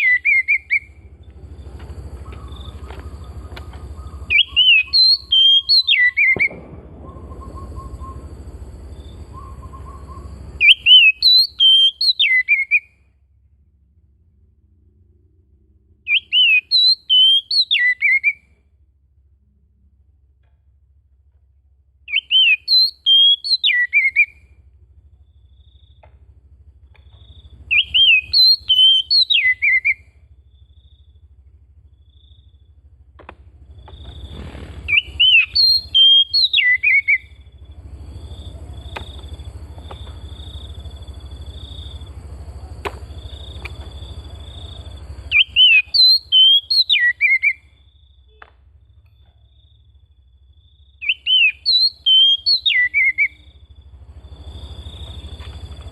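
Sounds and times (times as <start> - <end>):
bird whistling song: 0.0 - 1.1, 2.2 - 13.0, 16.1 - 18.6, 22.1 - 24.5, 27.0 - 31.1, 33.9 - 37.6, 43.1 - 48.5, 50.6 - 53.6
low rushing noise: 0.0 - 11.1.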